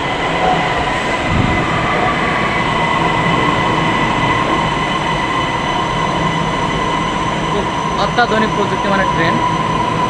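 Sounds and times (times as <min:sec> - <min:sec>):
metro train rumbling: 0:00.0 - 0:10.0.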